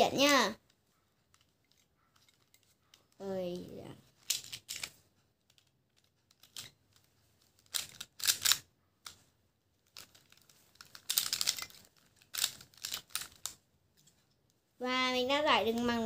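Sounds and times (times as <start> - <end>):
plastic puzzle clicking: 0.7 - 3.2, 4.0 - 9.2, 9.8 - 13.6.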